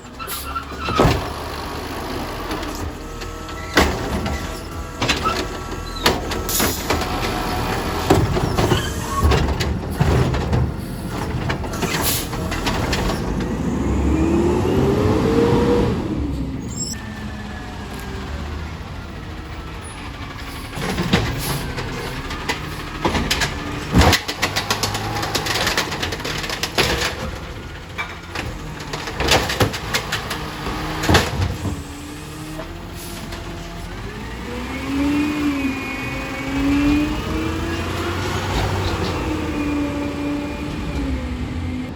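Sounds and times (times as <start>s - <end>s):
garbage truck engine: 0.0s - 41.9s
bins banging: 0.3s - 13.8s, 19.5s - 41.4s
hydraulic whine rising: 13.0s - 18.2s.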